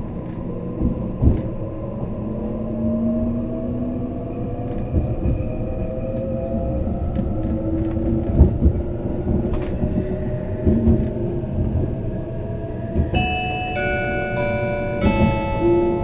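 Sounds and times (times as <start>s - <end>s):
train rumbling on rails: 0.0s - 16.0s
onboard chime melody: 13.2s - 16.0s.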